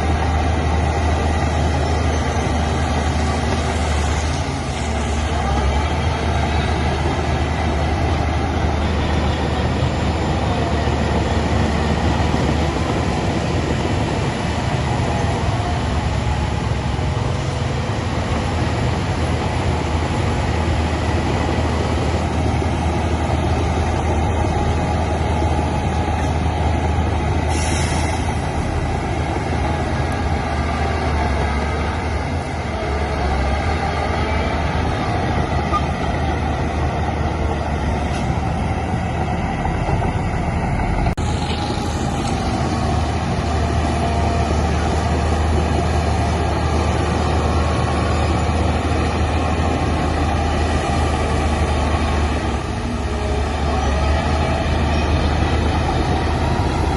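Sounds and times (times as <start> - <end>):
diesel machinery engine drone: 0.0 - 56.9
brief hiss: 27.5 - 28.4.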